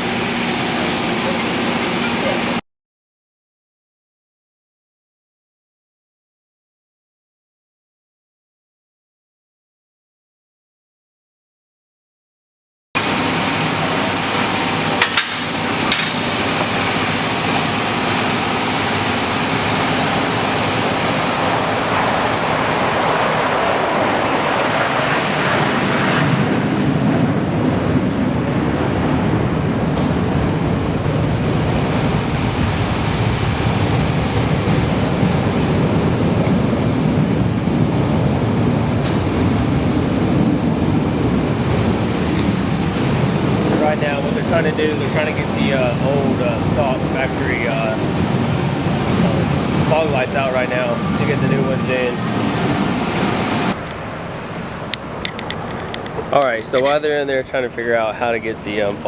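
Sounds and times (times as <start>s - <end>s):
steady rushing noise: 13.0s - 59.0s
sharp knocks: 15.0s - 16.7s.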